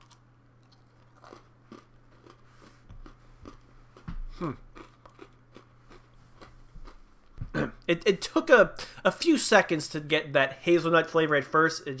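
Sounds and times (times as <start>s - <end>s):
person chewing crunchy cookie: 0.0s - 7.9s.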